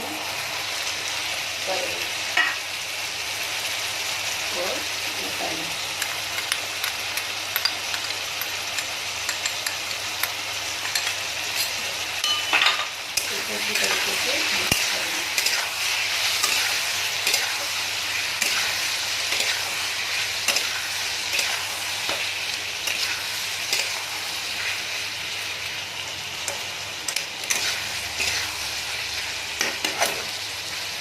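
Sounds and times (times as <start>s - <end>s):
potatoes sizzling in oil: 0.0s - 31.0s
spatula scraping a pan: 27.2s - 28.7s.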